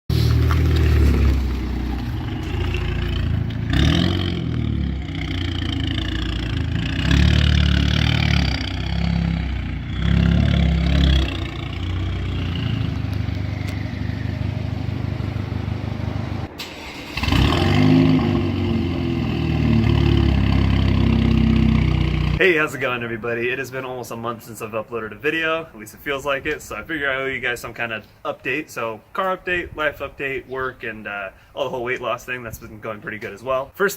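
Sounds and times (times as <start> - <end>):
car engine revving: 0.1 - 22.4.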